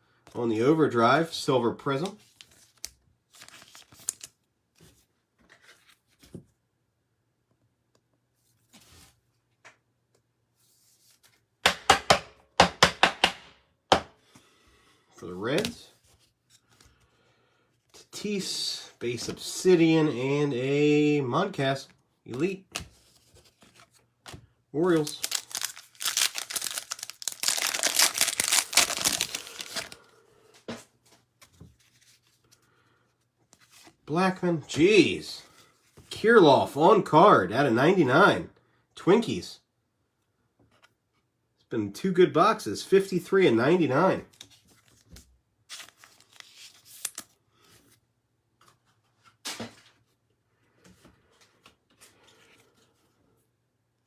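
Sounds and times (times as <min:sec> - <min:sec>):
cards rustling: 0:01.9 - 0:06.3, 0:22.3 - 0:30.1, 0:44.3 - 0:48.0
foil wrapper crinkling and tearing: 0:03.4 - 0:04.3, 0:24.8 - 0:30.0, 0:45.7 - 0:47.4.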